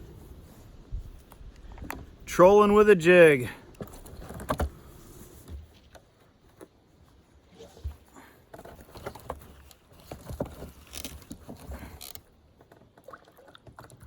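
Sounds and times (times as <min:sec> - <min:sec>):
fishing gear tapping and scraping: 0:03.6 - 0:06.8, 0:07.6 - 0:13.0.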